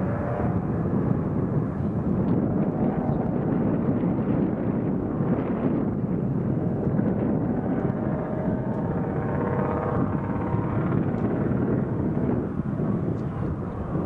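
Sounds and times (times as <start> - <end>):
jet engines rushing: 0.0 - 14.0.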